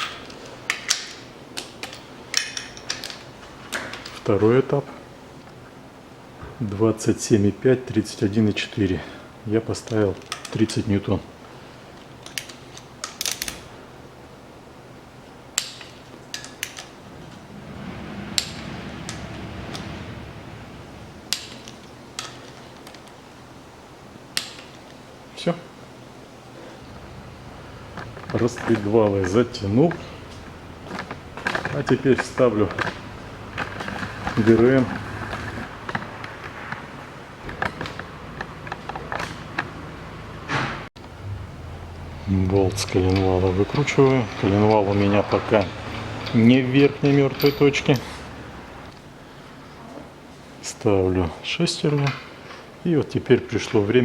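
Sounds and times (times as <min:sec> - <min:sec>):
metal parts and tools clicking: 0:00.0 - 0:04.3, 0:12.2 - 0:13.7, 0:15.6 - 0:17.4, 0:21.2 - 0:23.2, 0:42.5 - 0:49.0
low rumble: 0:17.0 - 0:22.1, 0:41.0 - 0:46.3.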